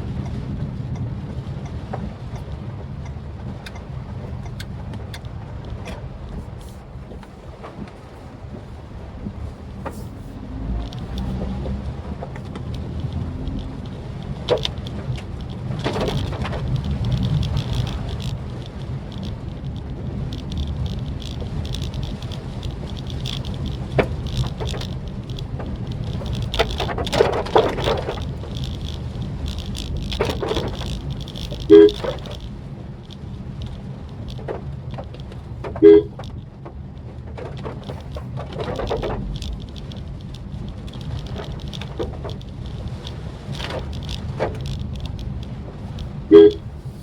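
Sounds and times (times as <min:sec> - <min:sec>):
car engine and road rumble: 0:00.0 - 0:47.0
raindrop ticks: 0:00.0 - 0:47.0
car horn beeps: 0:31.7 - 0:32.0, 0:35.8 - 0:36.2, 0:46.3 - 0:46.7.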